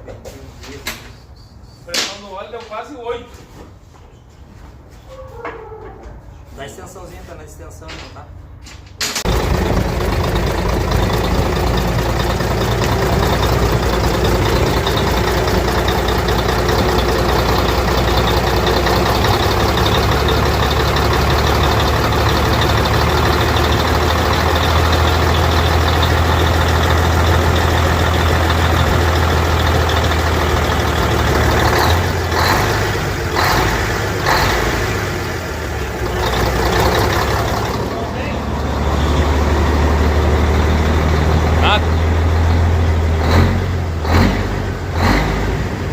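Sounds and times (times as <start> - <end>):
diesel truck engine idling: 9.2 - 45.9.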